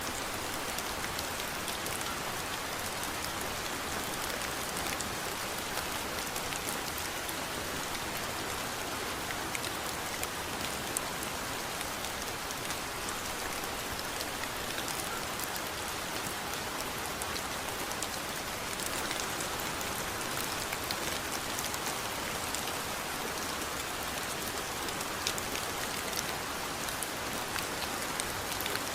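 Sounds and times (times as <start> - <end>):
steady rain hiss: 0.0 - 28.9
raindrops pattering: 9.6 - 28.9.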